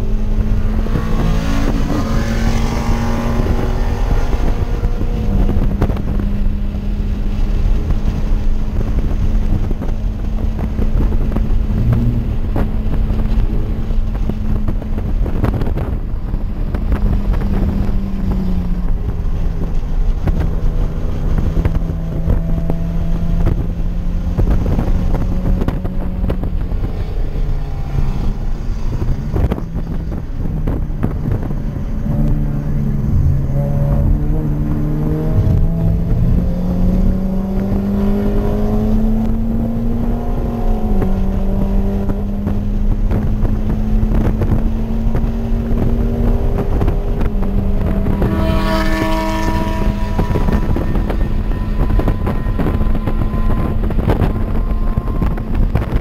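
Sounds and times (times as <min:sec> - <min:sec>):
car engine from inside cabin: 0:00.0 - 0:56.0
wind and road noise: 0:00.0 - 0:56.0.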